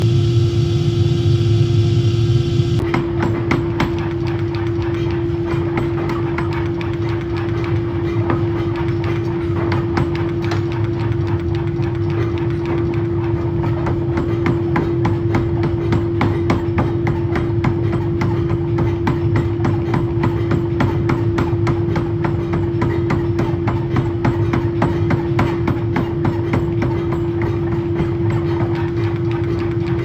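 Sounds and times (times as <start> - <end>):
steady machine hum: 0.0 - 3.9
forging hammer striking metal: 2.8 - 7.5, 13.8 - 30.0.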